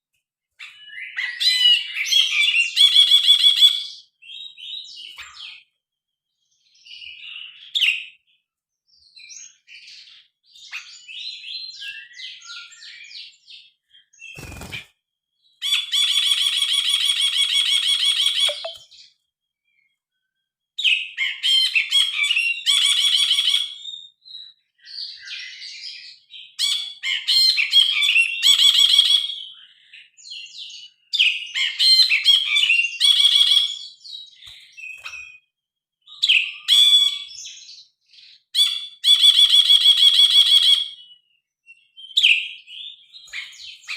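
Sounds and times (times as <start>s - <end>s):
bird rapid trill: 14.2s - 14.9s, 15.6s - 18.8s
bird singing chattering phrases: 14.3s - 14.8s, 17.6s - 18.9s.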